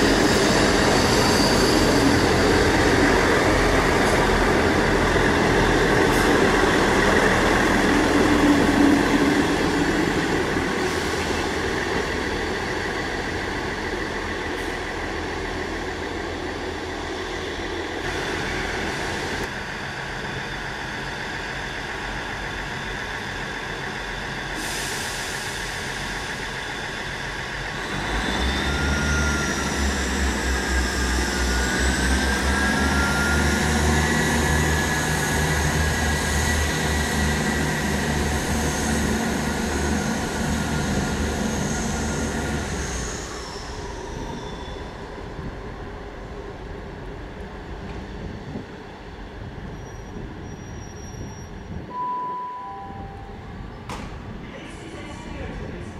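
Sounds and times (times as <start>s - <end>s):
diesel train engine hum: 0.0s - 55.9s.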